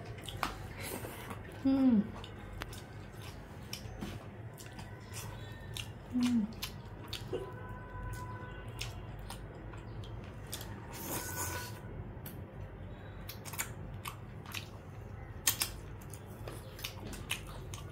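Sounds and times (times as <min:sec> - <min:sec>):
wet chewing: 0:00.0 - 0:12.4, 0:13.2 - 0:17.9
lip smacks: 0:15.4 - 0:17.9.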